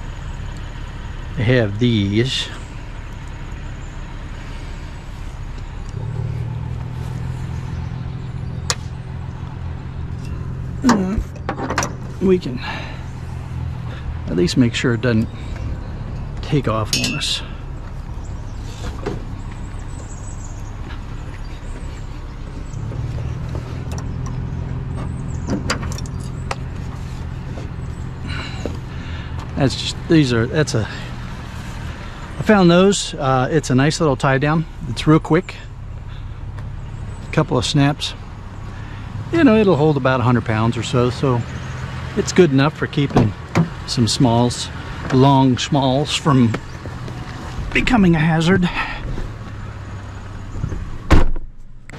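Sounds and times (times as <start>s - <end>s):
vehicle engine running: 0.0s - 51.9s
sharp clicks and knocks: 10.2s - 12.1s.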